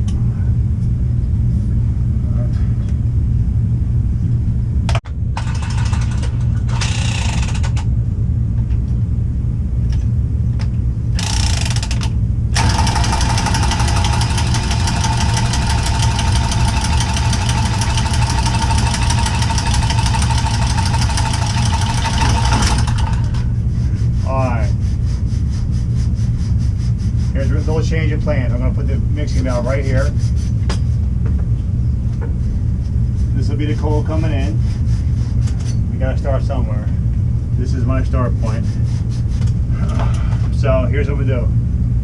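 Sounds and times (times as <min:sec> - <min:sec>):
machinery humming: 0:04.9 - 0:25.8
motor-driven tool whining: 0:05.4 - 0:07.8, 0:11.2 - 0:23.5.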